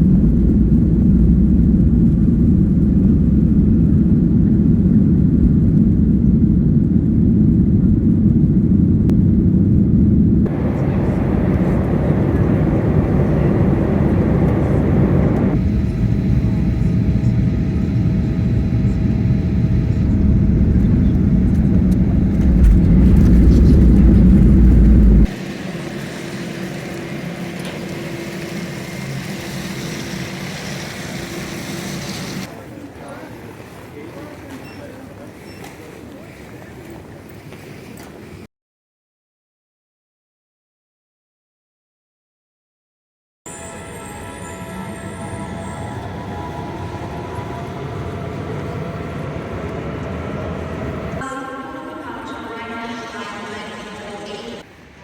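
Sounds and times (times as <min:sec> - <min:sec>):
low rumble of vehicle noise: 0:00.0 - 0:32.5, 0:44.8 - 0:51.4.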